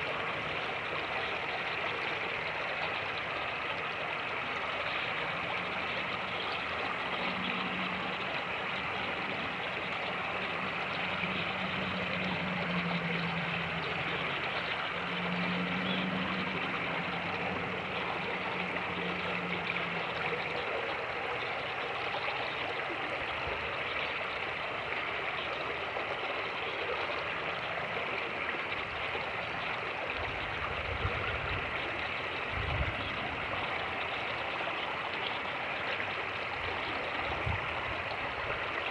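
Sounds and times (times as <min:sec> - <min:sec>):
creek rushing: 0:00.0 - 0:38.9
low engine hum: 0:09.0 - 0:20.7.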